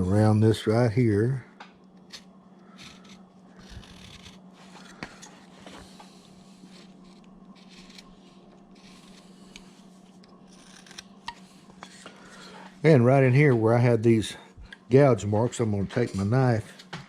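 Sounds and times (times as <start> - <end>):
steady low hum: 0.0 - 17.0
knife scraping wood: 2.1 - 12.8.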